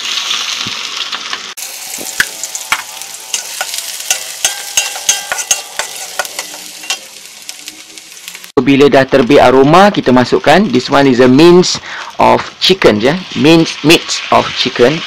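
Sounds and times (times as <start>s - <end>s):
onion and garlic sizzling in oil: 0.0s - 15.0s
metal spatula scraping a wok: 1.7s - 8.4s.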